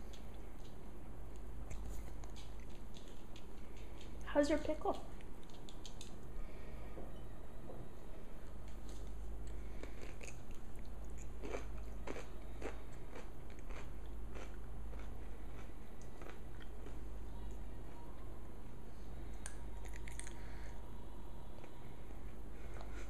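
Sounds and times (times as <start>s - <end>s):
soft chewing: 0.0s - 4.3s, 4.9s - 6.3s, 8.6s - 18.4s, 19.1s - 23.0s
crunching pickle: 9.4s - 17.6s, 19.4s - 20.5s.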